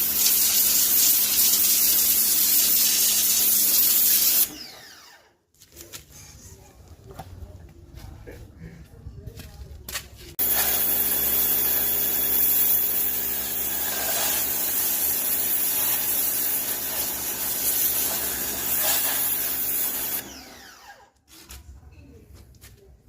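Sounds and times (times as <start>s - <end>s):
electric pressure washer running: 0.0s - 5.2s, 10.4s - 21.0s.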